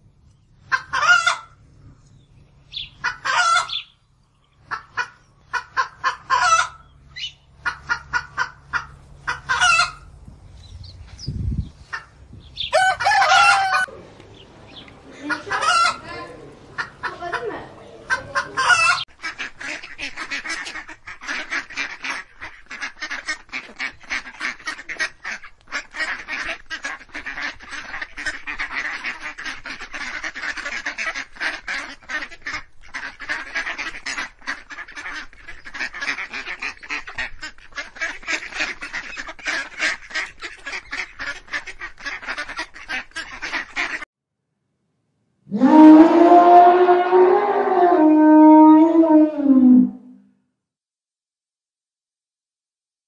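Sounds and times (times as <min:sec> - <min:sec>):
chicken calling: 0:00.6 - 0:01.6, 0:02.7 - 0:04.0, 0:04.6 - 0:10.1, 0:11.8 - 0:36.8, 0:45.5 - 0:50.1
ducks quacking: 0:00.6 - 0:01.6, 0:02.7 - 0:03.9, 0:04.6 - 0:10.1, 0:11.8 - 0:44.1.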